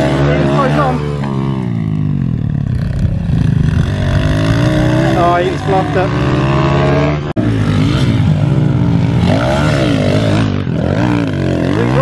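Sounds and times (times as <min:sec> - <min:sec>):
minibike engines revving: 0:00.0 - 0:12.0.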